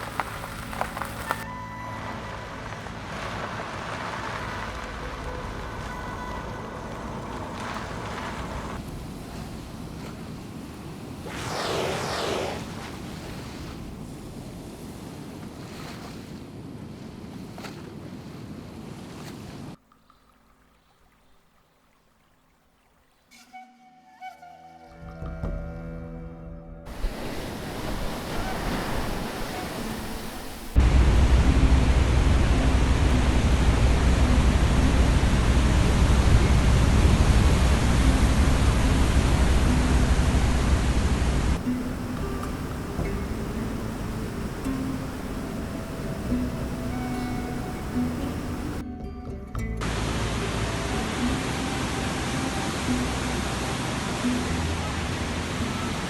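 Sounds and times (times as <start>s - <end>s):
sea waves washing: 0.0s - 17.5s, 26.9s - 48.8s, 49.8s - 56.0s
loud rushing roar: 11.2s - 13.1s
wind buffeting microphone: 26.9s - 48.8s.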